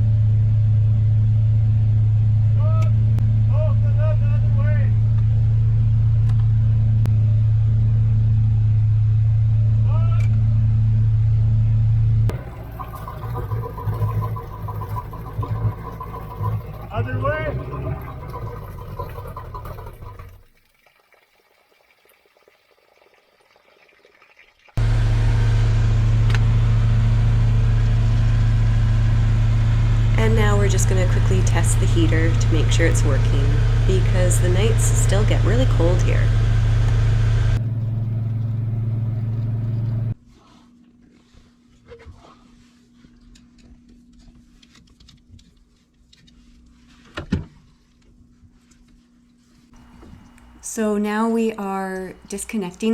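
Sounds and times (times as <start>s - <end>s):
low machine hum: 0.0s - 20.4s, 24.8s - 40.2s, 49.8s - 52.9s
boat engine idling: 12.3s - 20.4s, 24.8s - 40.2s, 49.8s - 52.9s.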